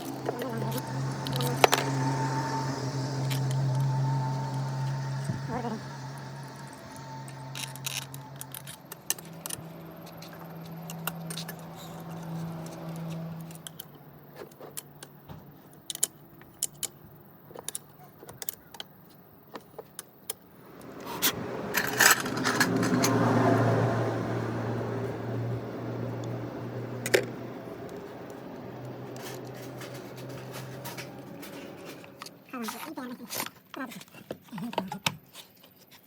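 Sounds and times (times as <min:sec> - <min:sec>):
metal tools clinking: 0:21.0 - 0:23.2, 0:29.0 - 0:33.8.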